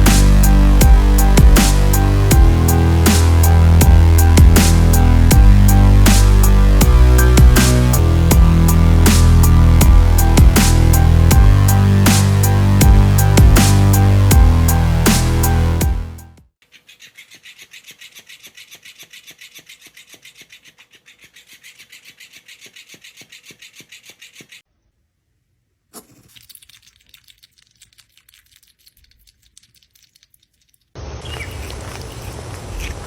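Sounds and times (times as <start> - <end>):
rhythmic scratching: 0.0 - 16.2.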